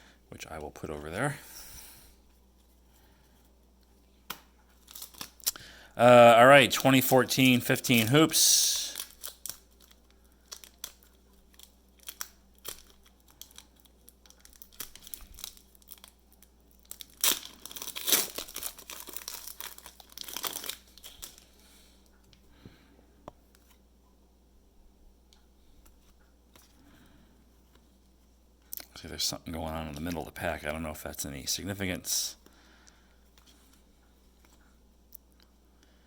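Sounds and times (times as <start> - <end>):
wrapper tearing and crinkling: 4.8 - 5.6, 6.5 - 21.5.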